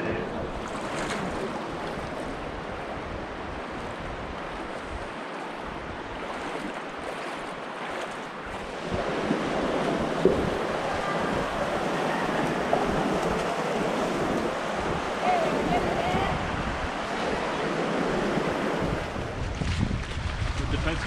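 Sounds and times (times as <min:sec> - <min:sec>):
waves washing against rocks: 0:00.0 - 0:21.0
wind buffeting microphone: 0:00.0 - 0:21.0
wind rushing: 0:08.6 - 0:21.0.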